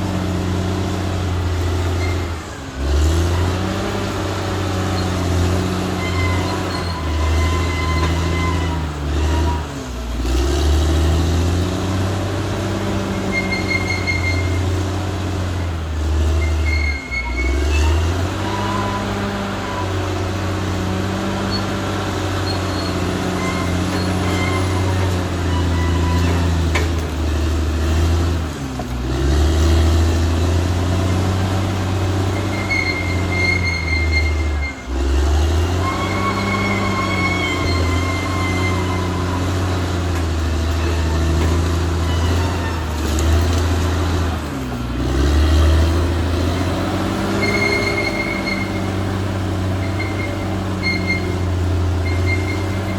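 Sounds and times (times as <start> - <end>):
bulldozer diesel engine: 0.0 - 52.9
short high-pitched squeals: 1.6 - 2.6, 4.7 - 9.8, 12.9 - 14.9, 16.2 - 20.2, 21.3 - 26.8, 32.2 - 43.1, 46.5 - 52.9.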